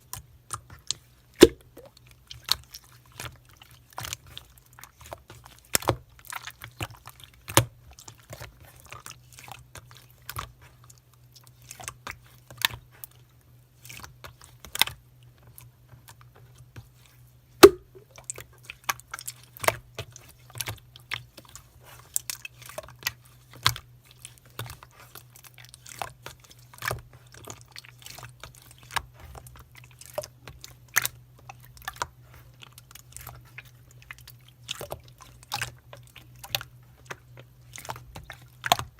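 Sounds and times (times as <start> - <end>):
slime clicks and pops: 1.4 - 1.9, 17.6 - 18.0.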